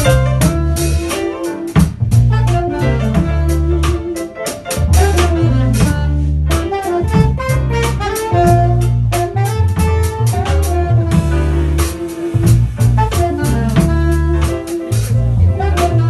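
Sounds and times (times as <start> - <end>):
drum kit: 0.0 - 16.0
guitar: 0.0 - 16.0
piano: 0.0 - 16.0
saxophone melody: 0.0 - 16.0
walking bass: 0.0 - 16.0.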